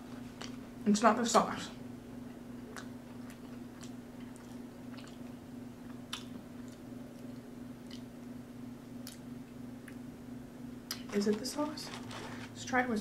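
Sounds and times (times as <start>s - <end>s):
low electrical hum: 0.0s - 13.0s
chewing mouth clicks and smacks: 2.7s - 8.1s, 9.0s - 10.0s.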